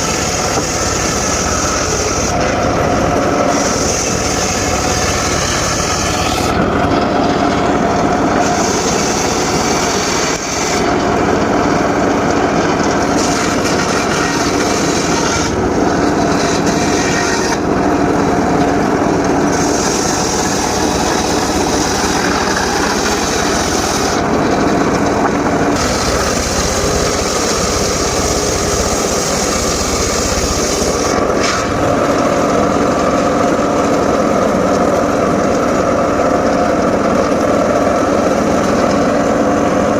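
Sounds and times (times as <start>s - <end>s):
circular saw cutting wood: 0.0s - 39.9s.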